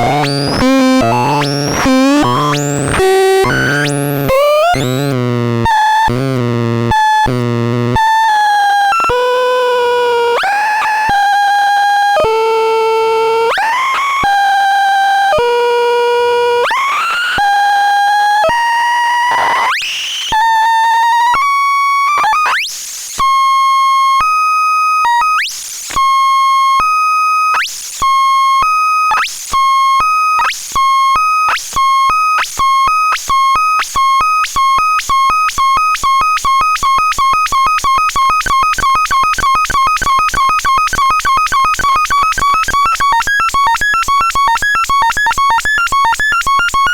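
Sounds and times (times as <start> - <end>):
buzzy synth notes gliding upward: 0.0 - 5.1.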